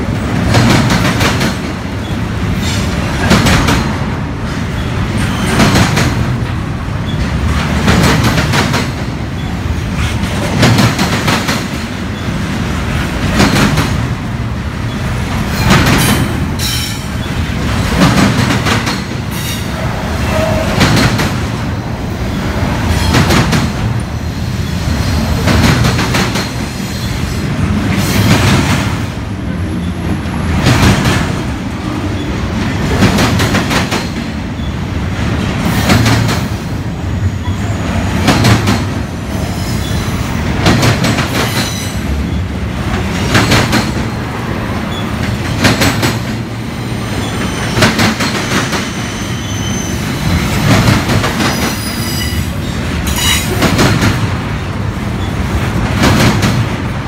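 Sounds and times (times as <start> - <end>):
wheels clacking over rail joints: 0.0 - 14.2
train rumble: 0.0 - 57.0.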